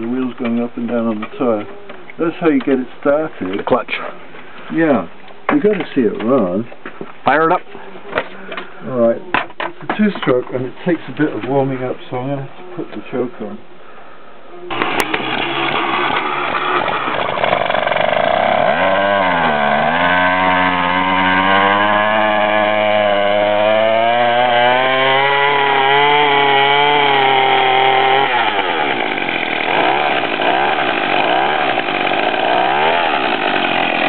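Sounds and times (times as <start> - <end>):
two-stroke engine revving: 14.7 - 34.0.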